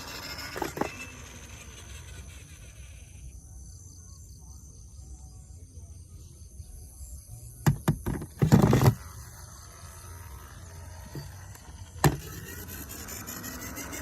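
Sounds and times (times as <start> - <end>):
steady low hum: 8.3 - 14.0.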